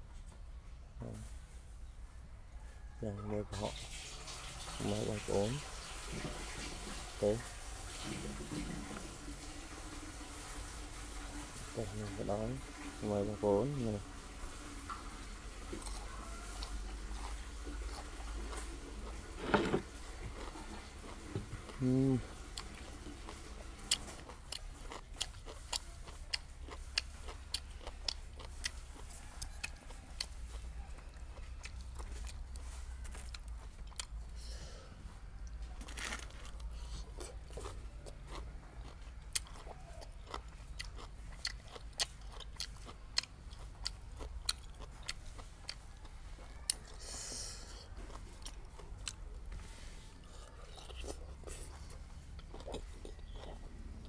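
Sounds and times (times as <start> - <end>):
wet chewing: 14.7 - 34.4, 35.2 - 54.0
crunching raw vegetables: 15.6 - 34.4, 35.1 - 54.0.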